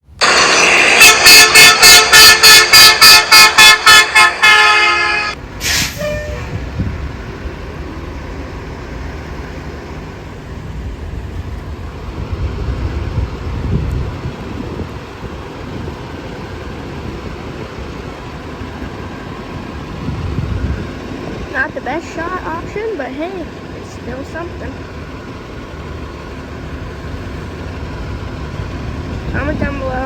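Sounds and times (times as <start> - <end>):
diesel engine running low: 0.0 - 30.0
truck horn honking: 0.2 - 6.7
short air hiss: 5.6 - 6.4.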